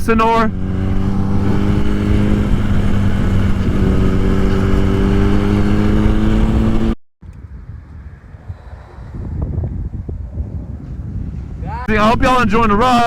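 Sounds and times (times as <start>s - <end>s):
motorcycle engine running: 0.0s - 7.0s
road noise: 0.0s - 12.4s
wind rush: 0.0s - 13.0s.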